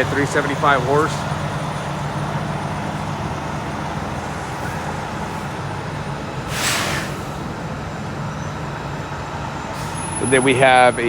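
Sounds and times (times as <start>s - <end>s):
low motor rumble: 0.0s - 11.0s
brief hiss: 6.5s - 7.4s.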